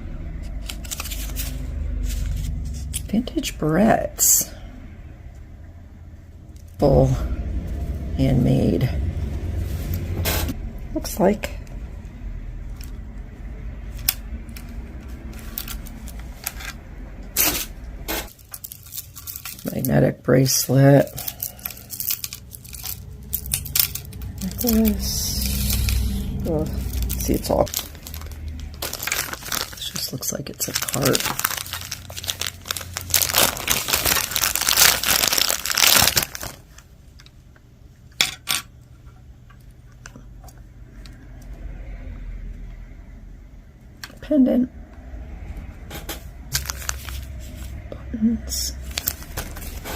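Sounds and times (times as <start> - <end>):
packaging crinkling and tearing: 0.5 - 3.0, 14.0 - 16.8, 18.3 - 36.9, 46.5 - 47.7, 48.8 - 49.9.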